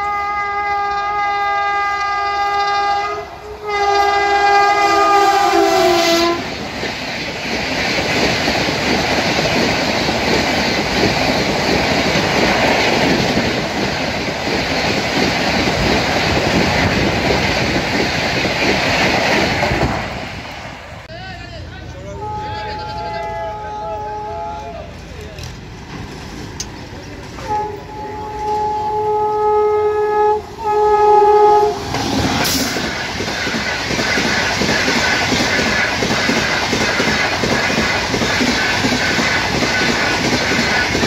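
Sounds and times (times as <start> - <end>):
train horn blasts: 0.0 - 6.5, 22.0 - 24.9, 27.4 - 32.0
train wheels clattering over rails: 3.7 - 21.1, 24.9 - 28.8, 31.7 - 41.0.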